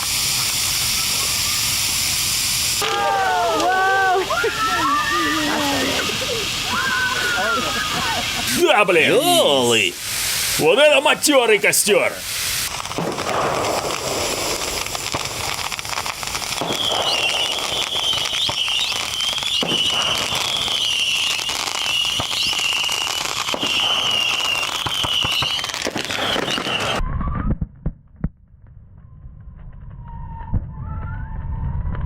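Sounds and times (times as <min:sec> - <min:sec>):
rush of flame: 0:00.0 - 0:21.5
bonfire crackling and popping: 0:00.0 - 0:29.9.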